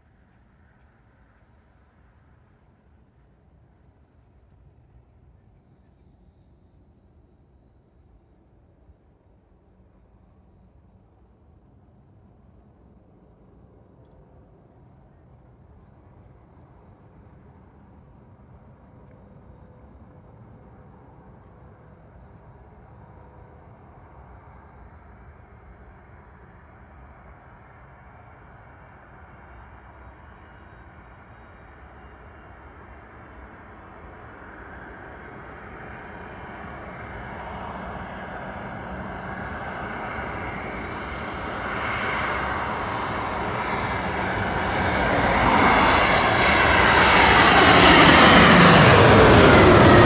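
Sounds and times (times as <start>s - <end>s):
jet airliner passing: 31.6s - 50.0s.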